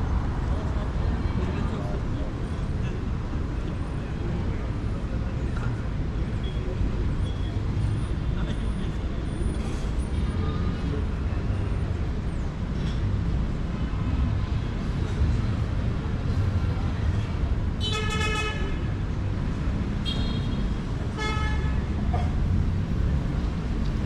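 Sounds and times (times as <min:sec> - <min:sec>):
faint voices: 0:00.0 - 0:17.8
rumble of road traffic: 0:00.0 - 0:24.0.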